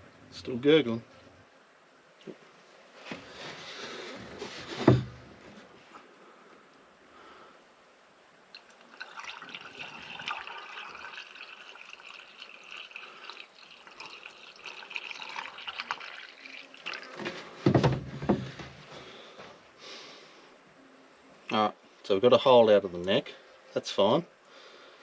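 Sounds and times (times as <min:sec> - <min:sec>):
deep glugs or knocks: 0:04.8 - 0:05.3, 0:17.6 - 0:18.8
liquid pouring and gurgling: 0:08.5 - 0:18.1.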